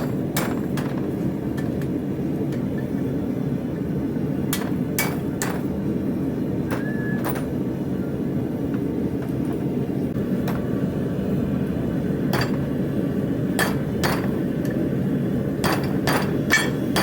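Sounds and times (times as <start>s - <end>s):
steady low rumble: 0.0s - 17.0s
hammer striking steel on anvil: 4.5s - 5.7s, 12.3s - 12.7s, 13.6s - 14.8s, 15.6s - 17.0s.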